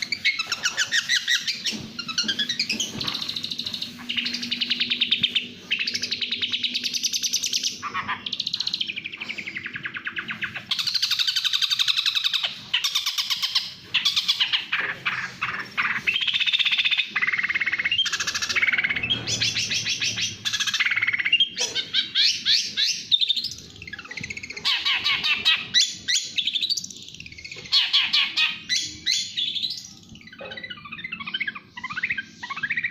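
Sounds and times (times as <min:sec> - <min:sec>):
bird singing rapid trills: 0:00.0 - 0:32.9.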